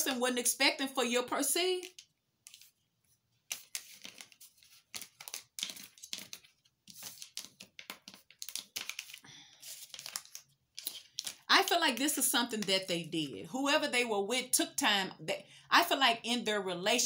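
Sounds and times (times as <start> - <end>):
cards being shuffled: 1.8 - 2.8, 3.4 - 11.5.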